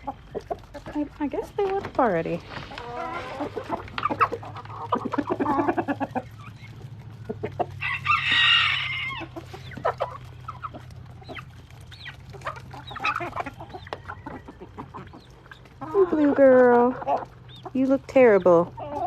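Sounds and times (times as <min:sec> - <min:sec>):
chickens clucking: 0:00.0 - 0:19.0
rooster crowing: 0:07.8 - 0:09.3.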